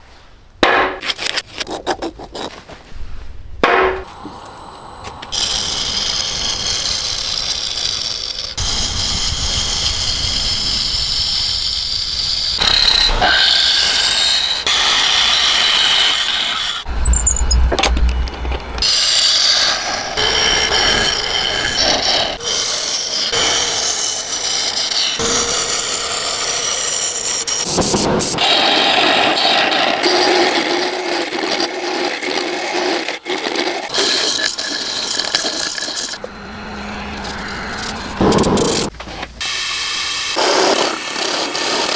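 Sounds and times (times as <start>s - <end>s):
lathe tool scraping wood: 1.0s - 2.6s, 4.0s - 41.9s
sharp knocks: 3.6s - 4.1s.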